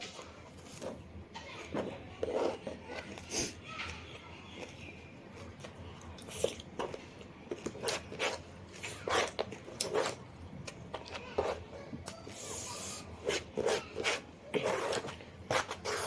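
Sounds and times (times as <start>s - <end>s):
mouth chewing crunchy food: 2.2s - 16.0s.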